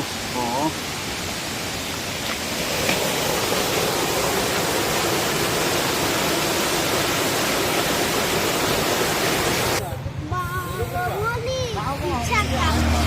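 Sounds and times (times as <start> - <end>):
waterfall roaring: 0.0 - 9.8.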